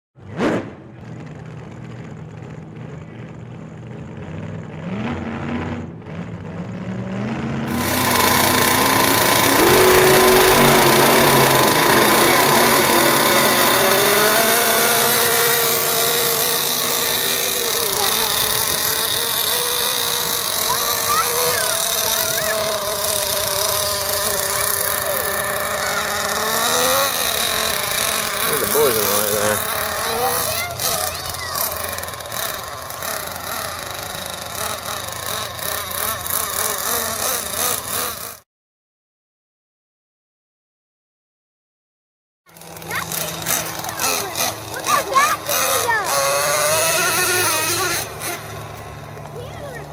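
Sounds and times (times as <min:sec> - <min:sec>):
small nitro engine revving: 0:00.2 - 0:38.5, 0:42.5 - 0:49.9.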